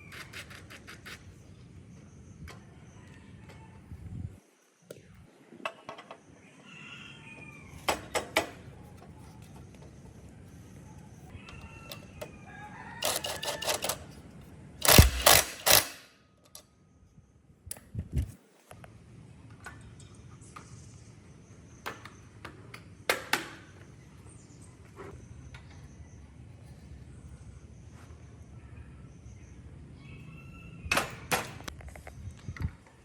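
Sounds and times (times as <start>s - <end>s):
sharp clicks and clattering knocks: 13.0s - 14.0s, 14.8s - 16.0s.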